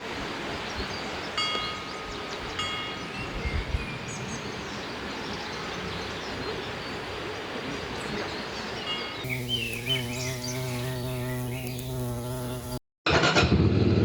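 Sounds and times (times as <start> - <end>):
steady background hiss: 9.2 - 12.8.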